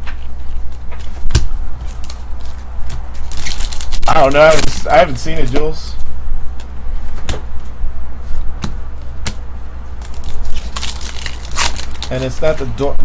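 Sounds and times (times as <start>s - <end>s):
trading cards being handled: 0.0s - 5.7s, 8.2s - 12.8s
low steady hum: 0.0s - 13.0s.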